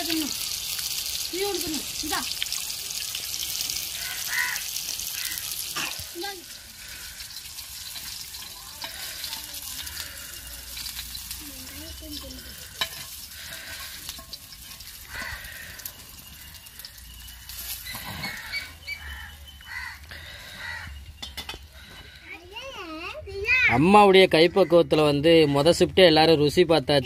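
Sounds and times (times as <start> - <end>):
food sizzling in hot oil: 0.0 - 20.0
metal spatula scraping pan: 7.3 - 15.4.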